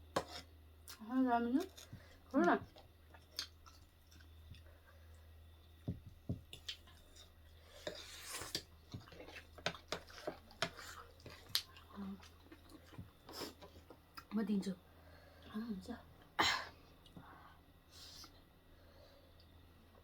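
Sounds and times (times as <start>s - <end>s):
chewing: 1.6s - 5.8s, 6.5s - 14.3s.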